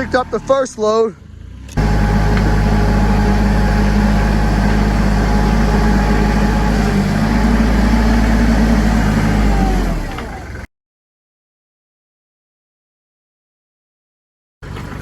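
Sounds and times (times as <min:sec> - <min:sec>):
tractor engine droning: 0:01.6 - 0:10.7, 0:14.6 - 0:15.0.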